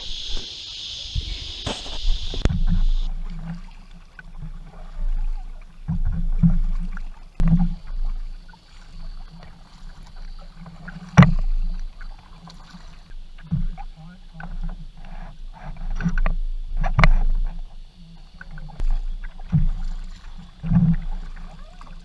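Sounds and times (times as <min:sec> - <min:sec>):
paddle strokes in water: 0:00.0 - 0:22.0.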